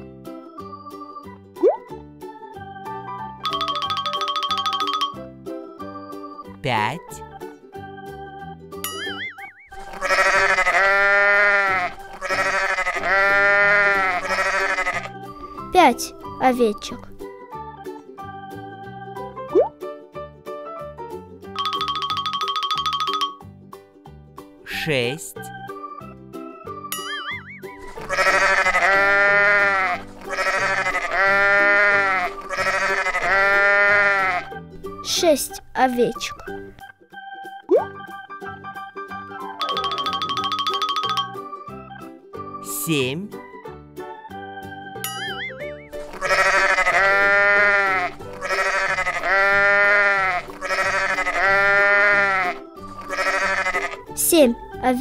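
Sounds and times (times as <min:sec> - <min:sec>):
soft background music: 0:00.0 - 0:55.0
sheep bleating: 0:09.8 - 0:15.2, 0:27.9 - 0:34.6, 0:46.0 - 0:54.1.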